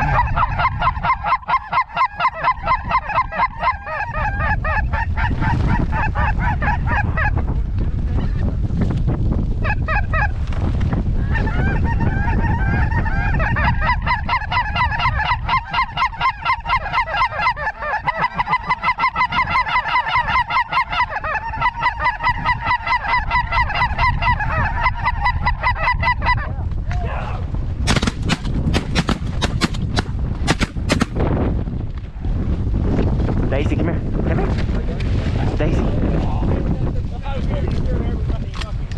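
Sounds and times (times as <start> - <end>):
geese honking: 0.0 - 7.3, 11.3 - 26.5
wind rumble on microphone: 0.0 - 38.9
shotgun shots: 27.9 - 31.2.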